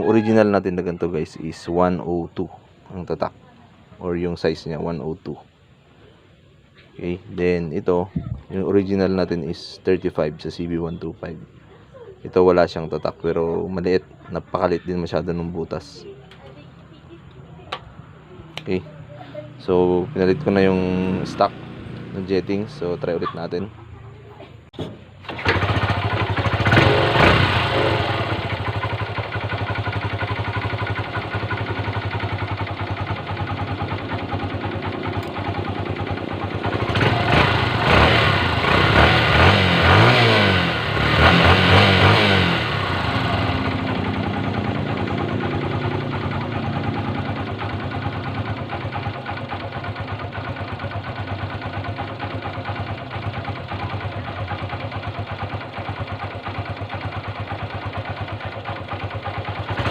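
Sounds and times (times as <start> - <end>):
motorcycle engine starting and idling: 15.8 - 59.9
motorcycle engine revving: 19.5 - 23.9, 24.8 - 59.9.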